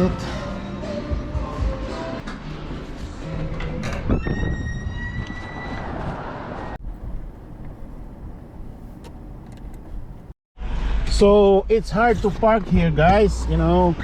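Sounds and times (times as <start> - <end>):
car road noise: 5.2 - 14.0.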